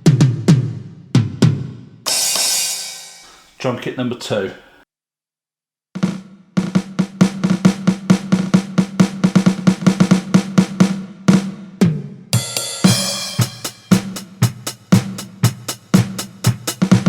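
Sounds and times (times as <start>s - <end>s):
electronic drum hits: 2.1s - 3.4s, 12.4s - 15.1s
crash cymbal: 2.1s - 3.6s.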